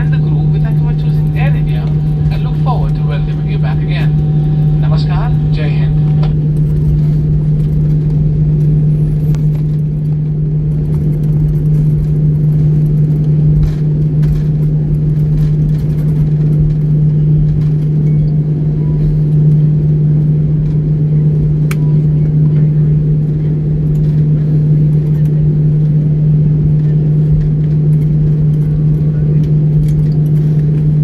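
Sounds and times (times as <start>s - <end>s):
jet airliner cabin drone: 0.0s - 31.0s
faint clicks in cabin: 21.6s - 22.7s, 23.4s - 26.0s, 26.7s - 30.9s.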